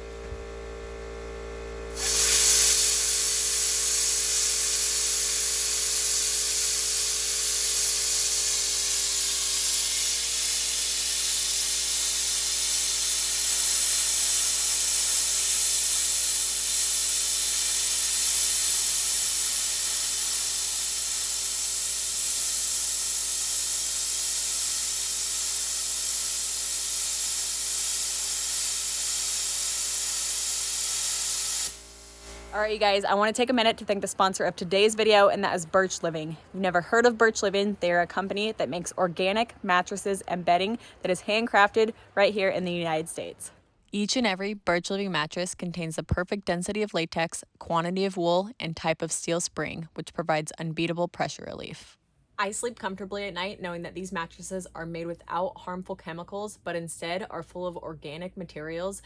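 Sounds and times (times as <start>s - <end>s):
plasma cutter hissing: 1.9s - 32.7s.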